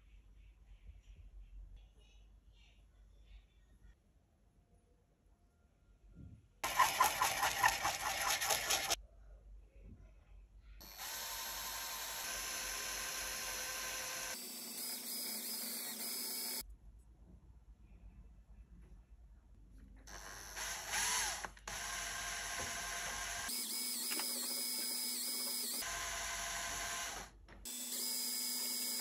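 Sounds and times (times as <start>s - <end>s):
metal scrubbing on sandpaper: 6.6s - 9.0s
cordless drill running: 10.8s - 16.6s, 20.1s - 29.0s.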